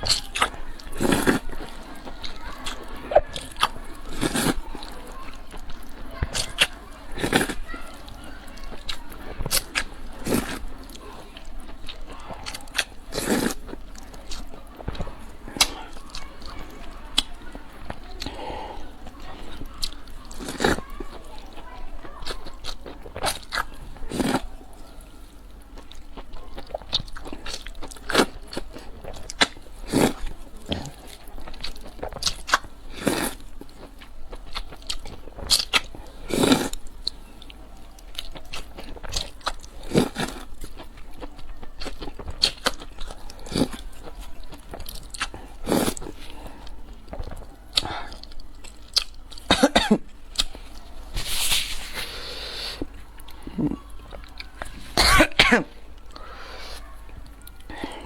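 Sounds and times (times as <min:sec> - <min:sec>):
person chewing crunchy food: 0:00.0 - 0:58.0
person coughing: 0:49.5 - 0:50.0, 0:55.0 - 0:55.8.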